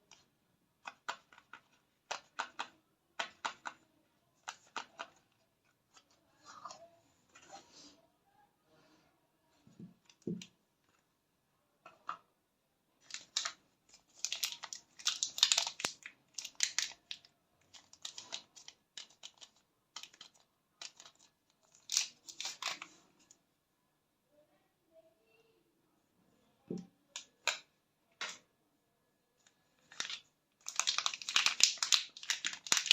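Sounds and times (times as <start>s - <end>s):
paper wrappers crinkling and tearing: 13.0s - 23.0s, 29.8s - 32.9s.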